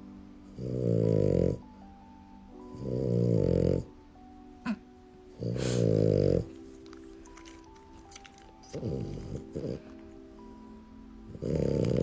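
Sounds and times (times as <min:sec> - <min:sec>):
soft background music: 0:00.0 - 0:12.0
dog snoring: 0:00.5 - 0:01.7, 0:02.7 - 0:03.9, 0:05.4 - 0:07.2, 0:08.6 - 0:10.2, 0:11.3 - 0:12.0.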